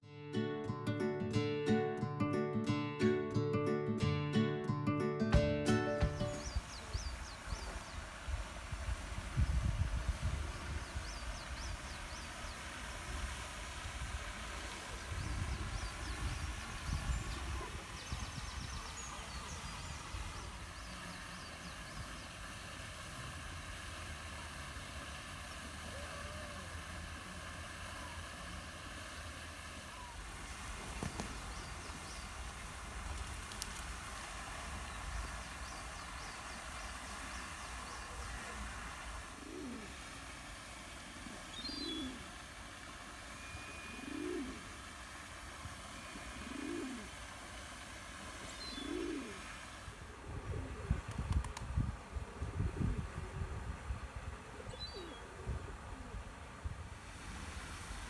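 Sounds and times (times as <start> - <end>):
small birds chirping: 6.0 - 22.8, 30.0 - 40.0, 41.3 - 42.4, 48.4 - 49.4
pigeon cooing: 38.0 - 40.2, 41.1 - 42.8, 43.4 - 45.3, 45.9 - 47.6, 48.4 - 49.6.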